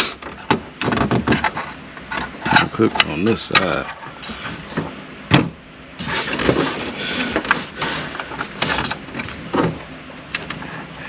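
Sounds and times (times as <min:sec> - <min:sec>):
plastic trim scraping and rustling: 0:00.3 - 0:05.0, 0:06.0 - 0:09.8.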